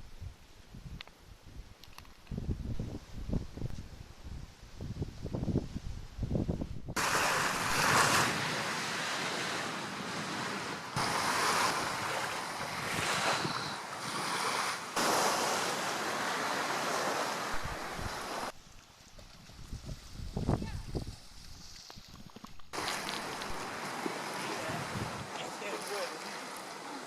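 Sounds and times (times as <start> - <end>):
wind buffeting microphone: 0.0 - 15.1, 15.8 - 18.5, 19.4 - 25.4
sea surf washing: 7.0 - 18.5, 22.8 - 27.0.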